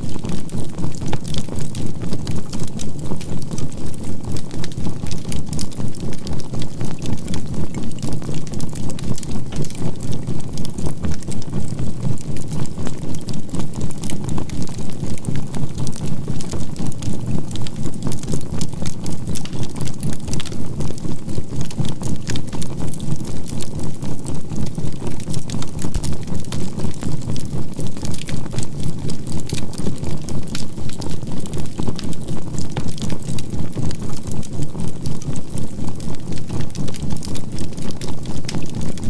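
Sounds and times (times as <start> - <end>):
charcoal crackling and popping: 0.1 - 39.0.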